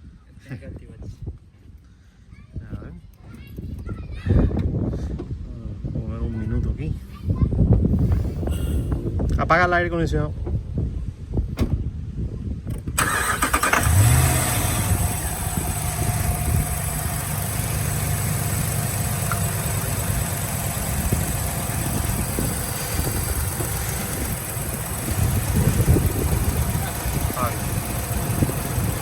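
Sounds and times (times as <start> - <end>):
truck engine starting and idling: 13.0 - 29.0.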